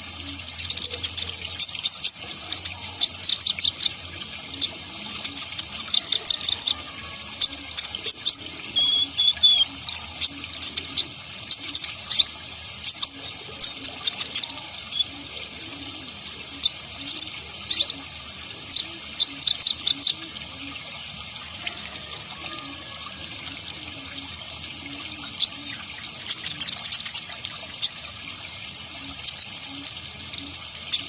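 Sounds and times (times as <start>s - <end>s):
sunbird chirping and twittering: 0.0s - 4.0s, 4.6s - 15.7s, 24.6s - 27.2s.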